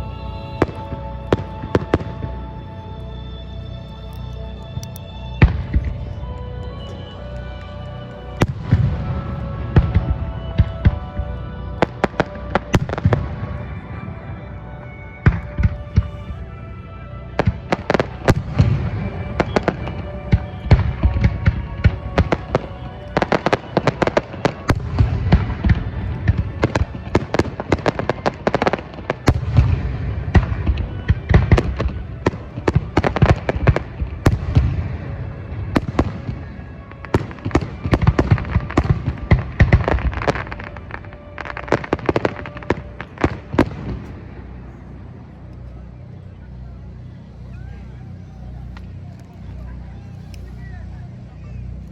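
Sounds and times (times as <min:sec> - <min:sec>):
deep rumble: 0:00.0 - 0:51.9
music: 0:00.0 - 0:51.9
fireworks bursting: 0:17.4 - 0:44.4.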